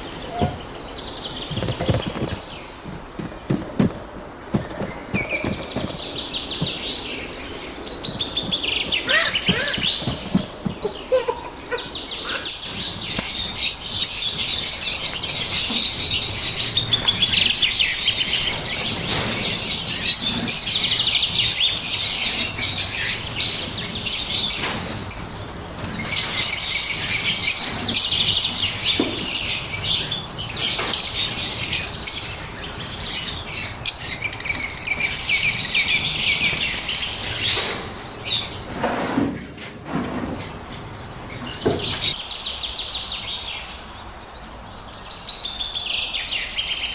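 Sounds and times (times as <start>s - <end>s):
lovebirds chirping: 0.0s - 46.9s.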